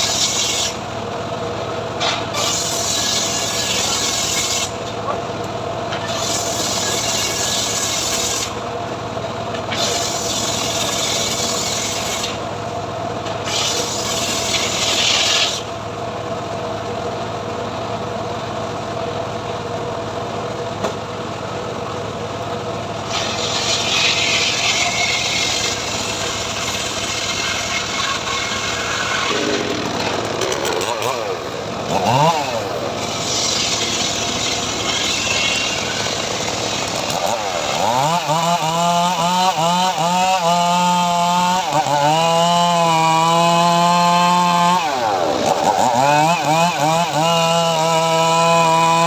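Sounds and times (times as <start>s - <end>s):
saw cutting wood hissing: 0.0s - 0.9s, 2.0s - 4.8s, 6.0s - 8.6s, 9.7s - 12.5s, 13.4s - 15.7s, 23.0s - 49.0s
sawmill drive tone: 20.8s - 40.0s.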